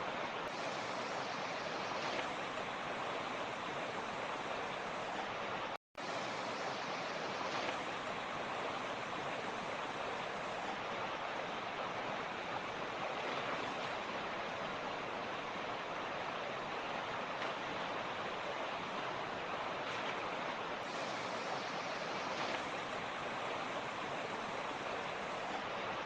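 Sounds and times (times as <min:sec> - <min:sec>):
creek rushing over stones: 0:00.0 - 0:26.0.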